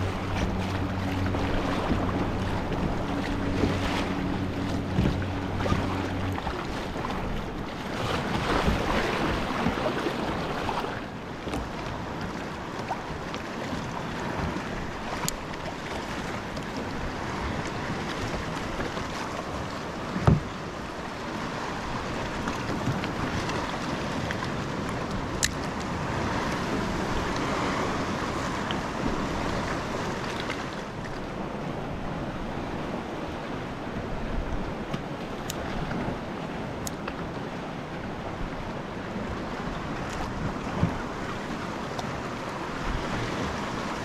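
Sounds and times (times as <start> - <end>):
wind on microphone: 0.0 - 19.2
sea water lapping: 0.0 - 44.0.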